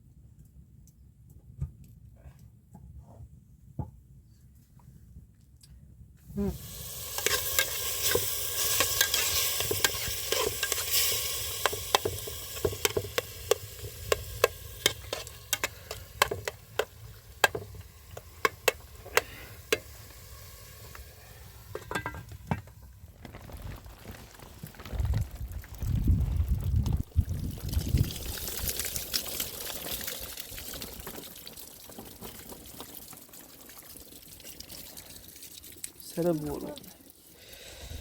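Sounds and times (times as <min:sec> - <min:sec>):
food sizzling in a pan: 0:06.4 - 0:22.2
utensil scraping a pan: 0:07.1 - 0:17.8.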